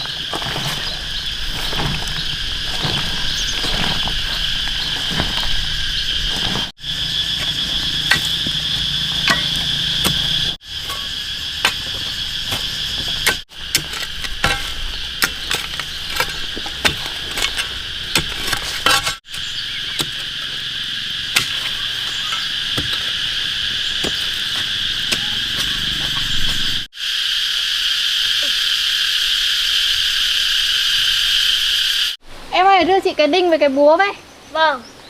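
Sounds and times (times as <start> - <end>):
crickets chirping: 0.0 - 35.0.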